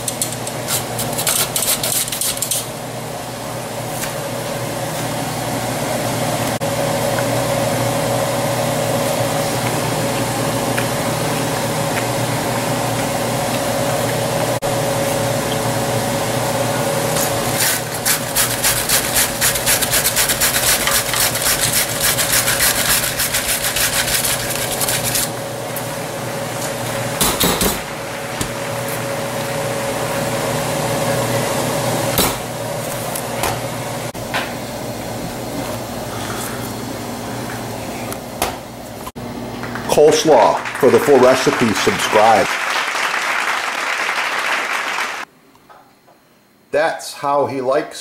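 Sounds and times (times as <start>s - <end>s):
steady hum: 0.0s - 42.9s
mandoline slicing cabbage: 17.6s - 25.3s.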